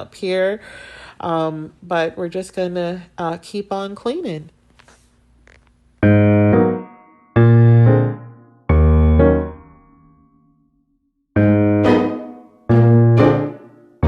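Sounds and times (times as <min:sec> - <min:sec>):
slow electric piano chords: 0:06.0 - 0:09.9, 0:11.4 - 0:13.7.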